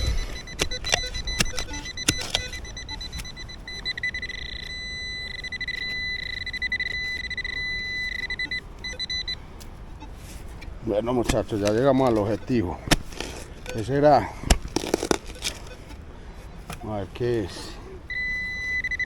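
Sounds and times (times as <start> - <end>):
metal detector pulsing tone: 0.0 - 9.4, 18.1 - 19.0
shovel knocking into hard ground: 11.2 - 15.7.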